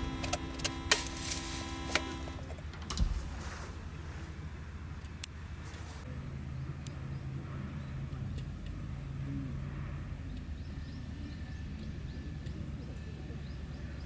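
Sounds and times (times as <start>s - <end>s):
distant engine droning: 0.0s - 3.5s.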